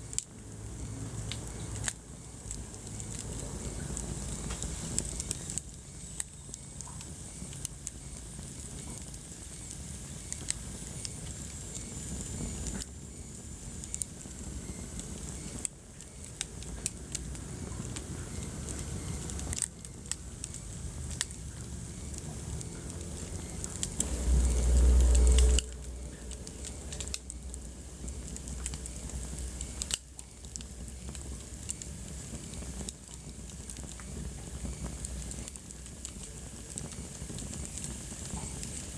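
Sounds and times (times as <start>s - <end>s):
wood fire crackling: 0.0s - 38.9s
low rumble: 20.8s - 30.0s.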